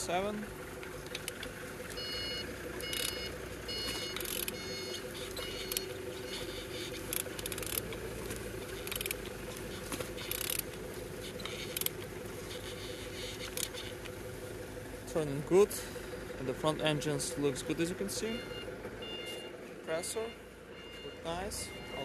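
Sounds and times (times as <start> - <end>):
steady mechanical hum: 0.1 - 17.0
electronic beeping: 2.0 - 7.8, 17.4 - 22.0
ratcheting clicks: 2.8 - 3.2, 4.2 - 4.6, 5.4 - 8.0, 8.8 - 9.3, 10.2 - 14.1.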